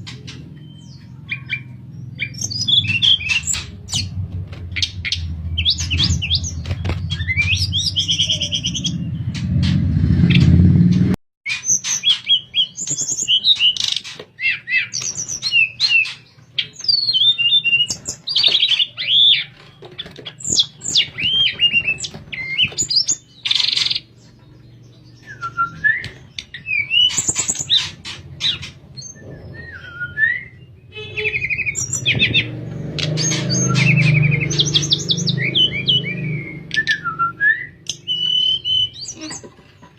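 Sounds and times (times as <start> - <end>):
songbird singing whistled phrases: 5.1 - 9.3, 25.1 - 27.8, 29.0 - 32.4, 33.2 - 39.4.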